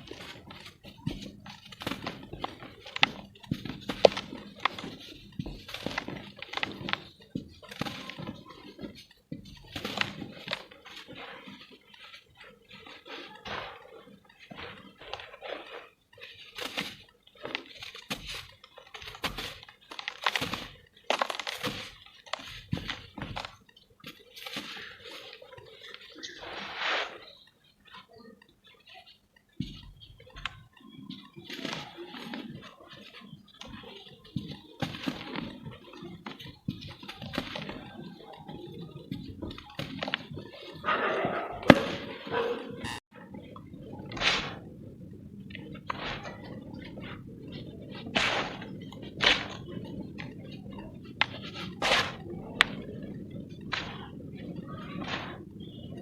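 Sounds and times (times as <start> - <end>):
cement lumps crunching: 0.0 - 28.0, 29.6 - 56.0.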